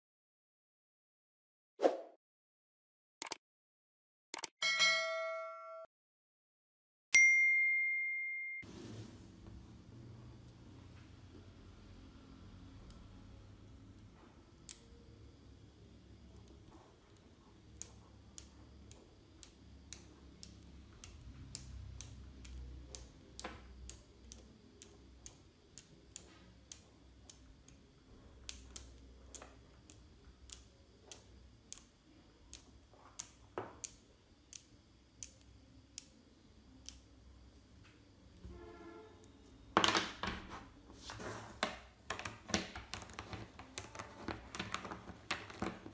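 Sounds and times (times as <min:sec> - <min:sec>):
magnetic balls clicking: 0:16.2 - 0:36.2, 0:42.0 - 0:45.9.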